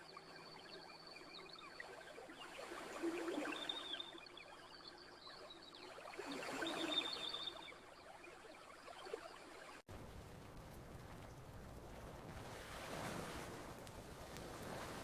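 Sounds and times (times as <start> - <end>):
campfire crackling: 9.9 - 15.0
ocean waves washing onto beach: 10.0 - 15.0.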